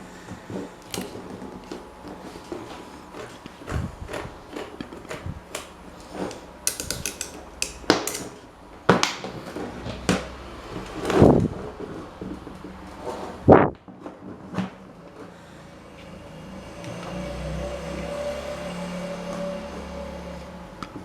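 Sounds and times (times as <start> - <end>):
metal tools clicking and knocking: 5.1 - 8.4.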